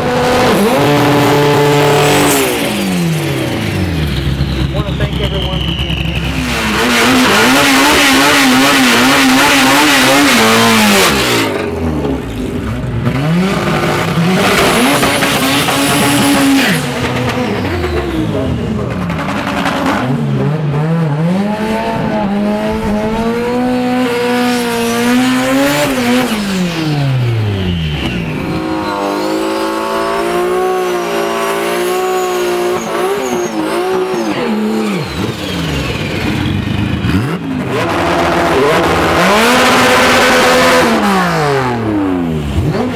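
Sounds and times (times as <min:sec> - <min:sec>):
car engines revving: 0:00.0 - 0:42.9
tire squeal: 0:03.8 - 0:08.7, 0:24.5 - 0:37.3.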